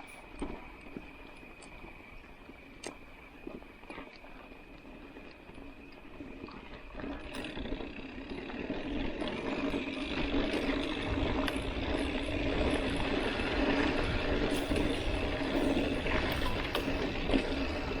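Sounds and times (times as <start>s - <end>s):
bike tyres rolling on dirt: 0.0s - 18.0s.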